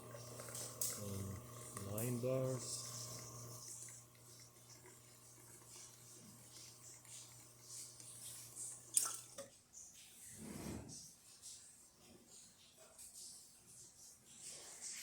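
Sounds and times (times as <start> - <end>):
espresso dripping: 0.0 - 9.4
espresso machine pump humming: 0.0 - 9.4.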